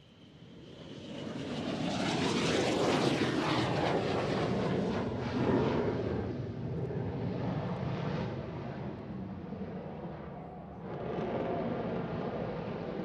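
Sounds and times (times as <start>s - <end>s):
aircraft flying past: 0.3s - 13.0s.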